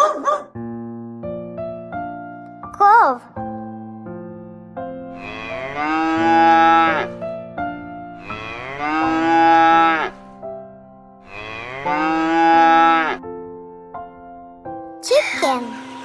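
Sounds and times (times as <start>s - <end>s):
cow mooing: 5.2s - 7.2s, 8.2s - 10.2s, 11.2s - 13.2s.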